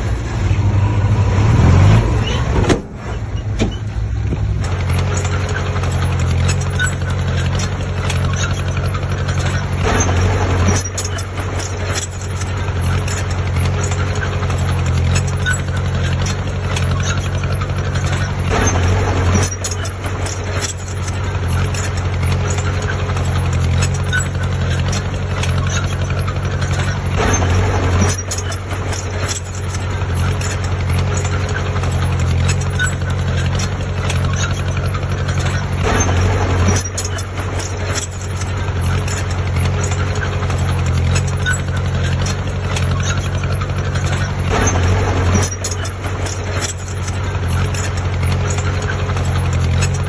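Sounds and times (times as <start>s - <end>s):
heavy diesel engine rumbling: 0.0s - 50.0s
metallic clanks and knocks: 1.7s - 50.0s.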